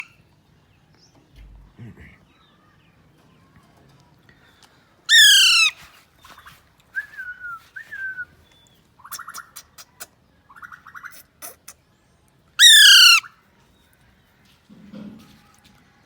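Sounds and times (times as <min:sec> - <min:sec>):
parakeet clicking chatter: 0:05.1 - 0:05.7, 0:09.0 - 0:11.8, 0:12.6 - 0:13.2
parakeet short calls: 0:05.1 - 0:05.8, 0:12.6 - 0:13.3
parakeet squawking: 0:05.1 - 0:05.8, 0:12.6 - 0:13.3.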